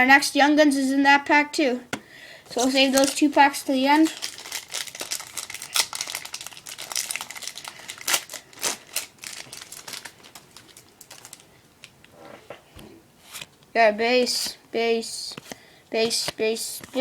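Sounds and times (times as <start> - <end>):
wrapper crinkling and tearing: 2.5 - 11.9.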